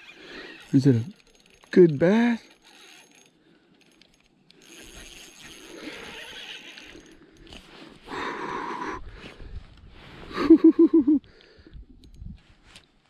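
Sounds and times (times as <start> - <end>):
fishing reel gears whirring: 0.0 - 7.7.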